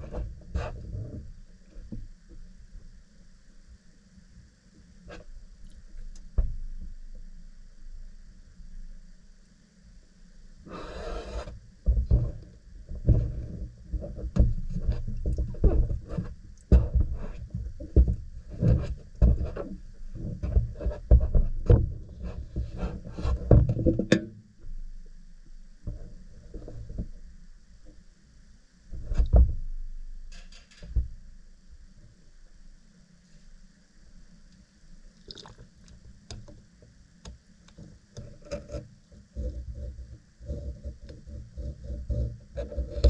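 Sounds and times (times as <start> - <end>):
rubbing and scraping handling noise: 0.0 - 2.0, 10.7 - 12.4, 13.0 - 24.1, 37.8 - 43.0.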